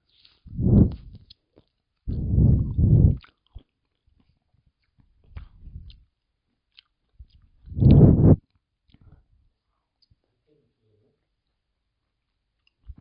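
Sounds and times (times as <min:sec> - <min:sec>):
chewing juicy citrus: 0:00.1 - 0:09.3.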